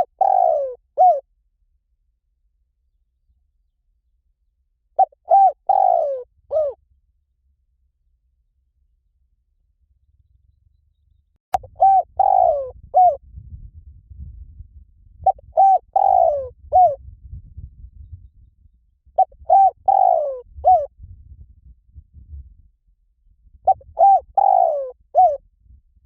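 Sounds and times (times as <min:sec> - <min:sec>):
dove cooing: 0:00.0 - 0:01.2, 0:05.0 - 0:06.8, 0:11.6 - 0:13.2, 0:15.2 - 0:17.0, 0:19.2 - 0:20.9, 0:23.7 - 0:25.4
faint low rumble: 0:06.1 - 0:26.0.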